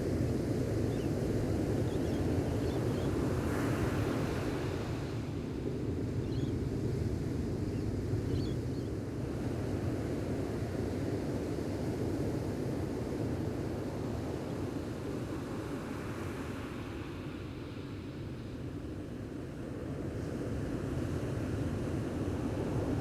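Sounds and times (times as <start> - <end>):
ocean surf: 3.1 - 5.8
faint bird chirps: 8.3 - 8.9.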